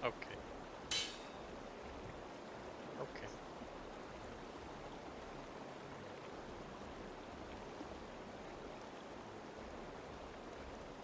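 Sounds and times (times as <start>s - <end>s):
faint rushing hiss: 0.8s - 1.6s.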